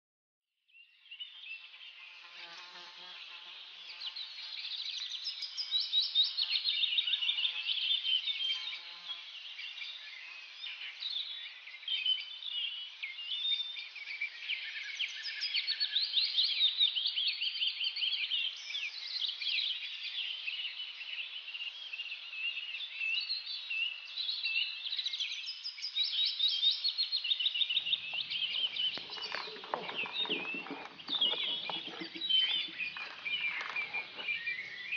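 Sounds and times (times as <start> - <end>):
parrots chattering: 28.5 - 34.2.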